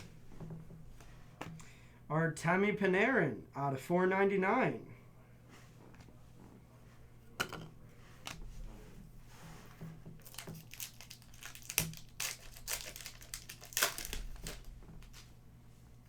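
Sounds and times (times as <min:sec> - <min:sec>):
packaging wrappers crinkling: 0:10.2 - 0:15.4.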